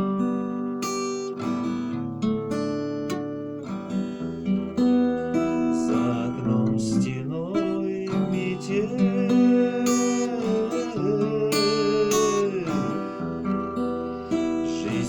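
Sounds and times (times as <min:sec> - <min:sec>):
acoustic guitar strumming: 0:00.0 - 0:15.0
person singing: 0:05.4 - 0:15.0.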